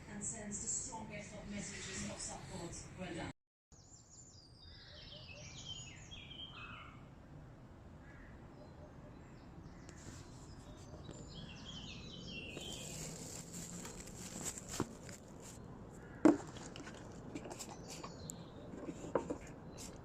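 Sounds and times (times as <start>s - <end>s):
birds chirping: 3.8s - 7.1s, 8.0s - 20.0s.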